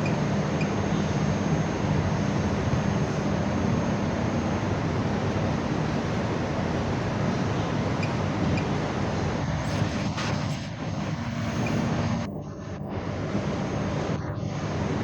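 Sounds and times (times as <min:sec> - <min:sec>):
low hum: 0:00.0 - 0:15.0
steady background rush: 0:00.0 - 0:15.0.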